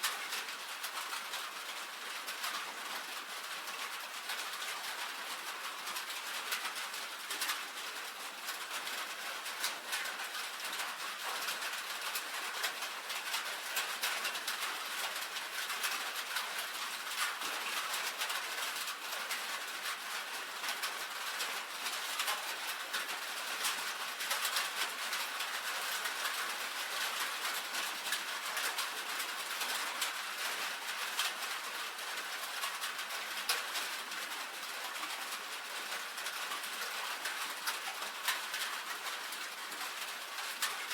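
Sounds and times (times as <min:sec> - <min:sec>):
rain on a tin roof: 0:00.0 - 0:40.9.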